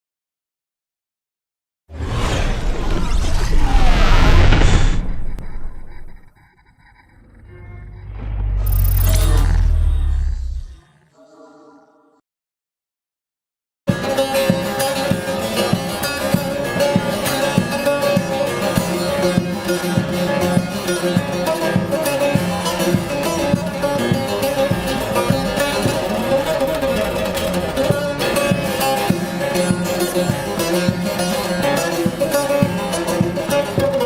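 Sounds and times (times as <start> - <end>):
lute picking and strumming: 13.9 - 34.0.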